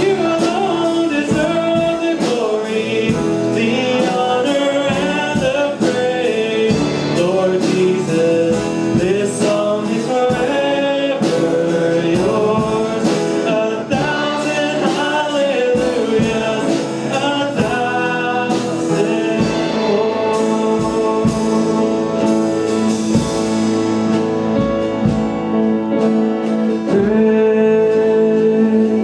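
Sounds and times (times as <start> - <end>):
acoustic guitar strumming: 0.0 - 29.0
singers with a band: 0.0 - 29.0.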